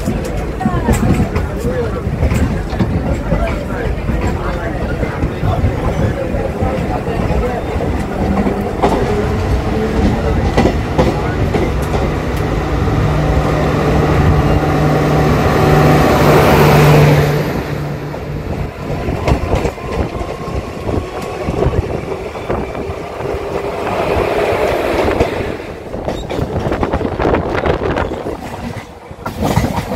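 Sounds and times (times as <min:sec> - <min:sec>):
wheels clicking over rail joints: 0:00.0 - 0:12.6, 0:26.0 - 0:29.9
passing train on next track: 0:00.0 - 0:29.9
train running rumble and rattle: 0:00.0 - 0:29.9.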